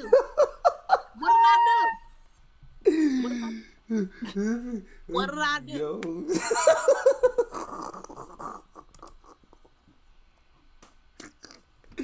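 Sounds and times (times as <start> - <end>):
person laughing: 0.0 - 1.9, 6.3 - 9.6.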